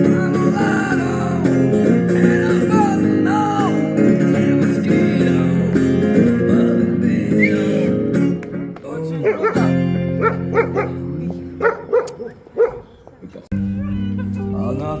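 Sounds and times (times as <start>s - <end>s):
electric guitar playing: 0.0s - 12.5s, 13.5s - 15.0s.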